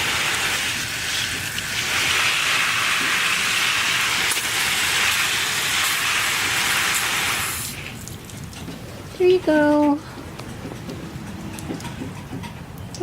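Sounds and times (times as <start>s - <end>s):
hose water spraying on plants: 0.0s - 8.5s.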